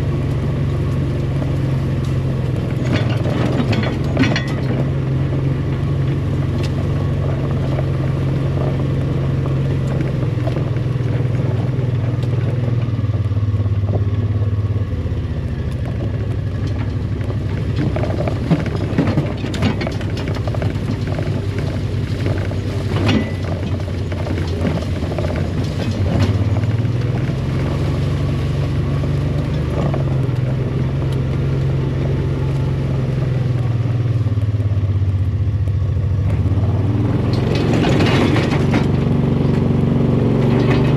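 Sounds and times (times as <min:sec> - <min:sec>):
vehicle engine driving: 0:00.0 - 0:40.9
knocks and rattles: 0:01.4 - 0:12.7, 0:15.8 - 0:30.7, 0:36.3 - 0:40.9.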